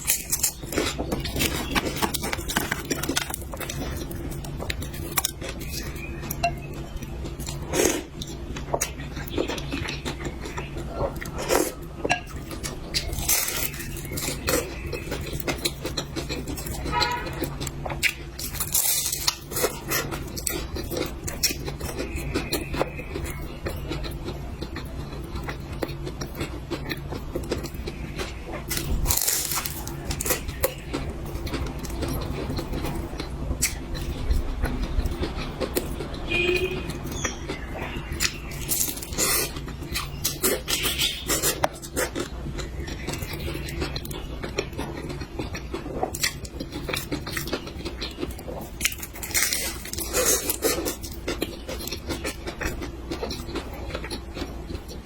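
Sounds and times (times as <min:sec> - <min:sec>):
chewing and mouth noises: 0:00.0 - 0:55.0
steady low hum: 0:00.0 - 0:55.0.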